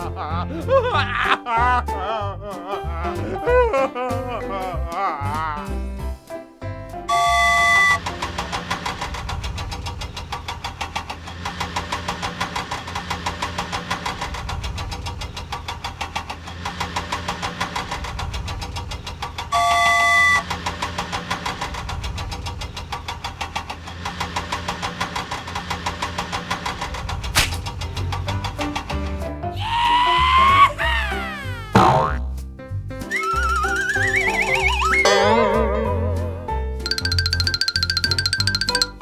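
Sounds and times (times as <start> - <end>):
short steady honk: 7.1 - 8.0, 19.5 - 20.4
cartoon engine chugging: 30.7 - 32.3, 33.1 - 39.0.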